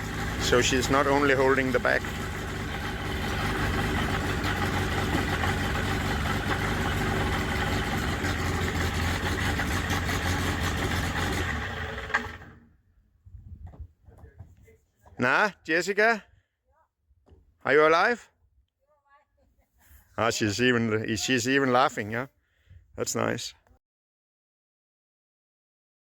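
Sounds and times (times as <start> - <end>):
airplane propeller engine running: 0.0 - 12.6.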